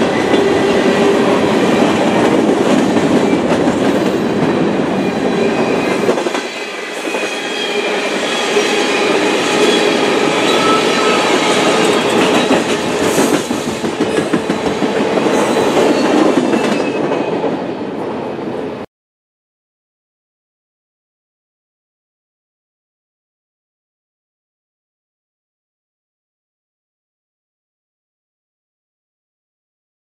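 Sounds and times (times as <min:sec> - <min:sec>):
wheel squeal: 0:09.6 - 0:12.0.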